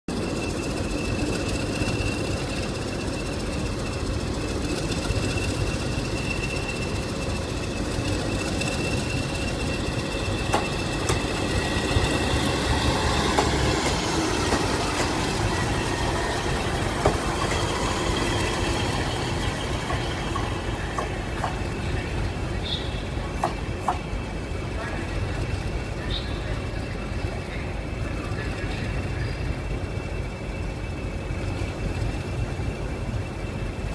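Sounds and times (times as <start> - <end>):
diesel train engines rumbling: 0.1 - 33.9
high engine whine: 0.1 - 33.9
wheels clicking over rail joints: 0.5 - 24.2.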